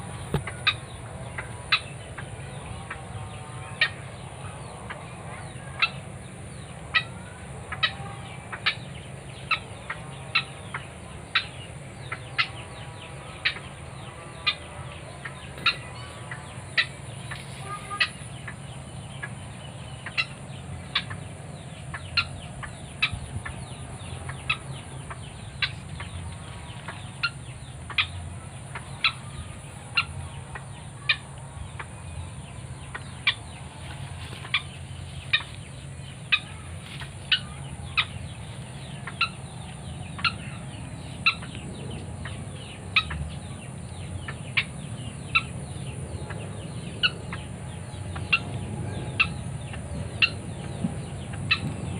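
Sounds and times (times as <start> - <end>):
steady high-pitched whine: 0.0 - 51.9
waterhen calling: 6.9 - 32.3, 32.9 - 43.3.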